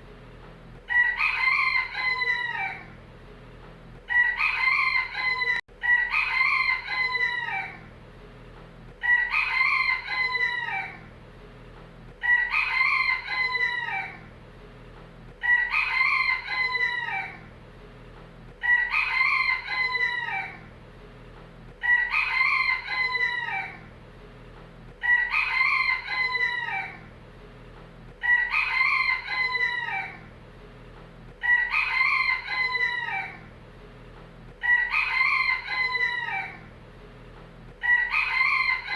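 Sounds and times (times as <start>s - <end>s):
rooster crowing: 0.9s - 3.0s, 4.1s - 7.9s, 9.0s - 11.1s, 12.2s - 14.3s, 15.4s - 17.5s, 18.6s - 20.7s, 21.8s - 23.9s, 25.0s - 27.1s, 28.2s - 30.3s, 31.4s - 33.5s, 34.6s - 36.7s, 37.8s - 38.9s.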